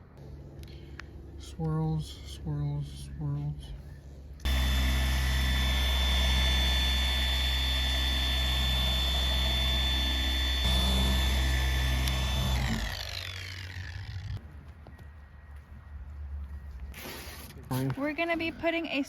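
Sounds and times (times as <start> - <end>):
electric polisher running: 4.5 - 14.4
polisher winding down whine: 4.5 - 14.4.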